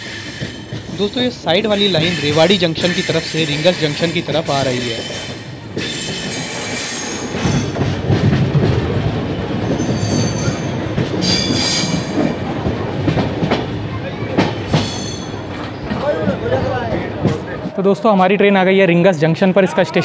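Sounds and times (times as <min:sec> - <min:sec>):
train wheels clattering: 0:00.0 - 0:17.8
high-pitched wheel squeal: 0:01.7 - 0:07.7.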